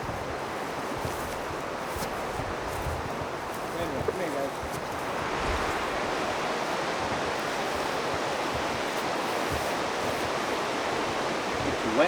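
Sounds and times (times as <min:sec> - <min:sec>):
river water rushing: 0:04.9 - 0:12.0.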